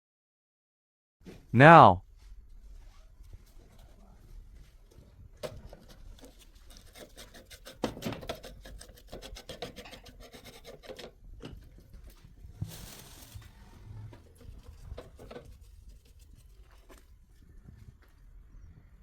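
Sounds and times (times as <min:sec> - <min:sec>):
scraping and rubbing strokes: 0:05.8 - 0:11.0.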